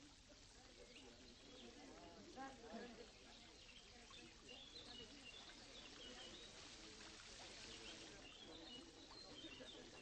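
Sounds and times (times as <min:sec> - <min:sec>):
small birds chirping: 0:03.1 - 0:10.0.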